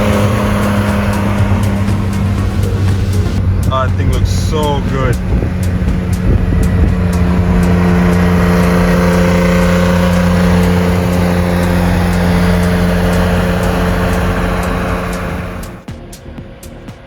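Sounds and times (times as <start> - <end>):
car engine running steadily: 0.0 - 17.0.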